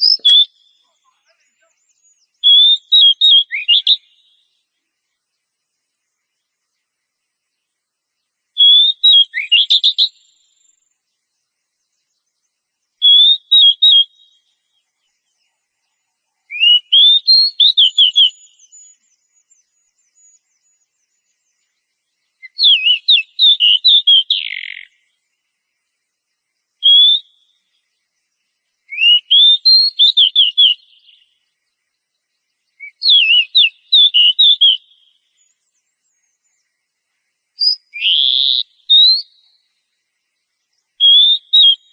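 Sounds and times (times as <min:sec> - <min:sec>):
bird singing whistled phrases: 0:00.0 - 0:04.5, 0:08.6 - 0:10.8, 0:13.0 - 0:14.8, 0:16.4 - 0:21.7, 0:22.4 - 0:25.0, 0:26.8 - 0:27.8, 0:28.9 - 0:31.4, 0:32.7 - 0:36.6, 0:37.6 - 0:39.6, 0:41.0 - 0:41.9.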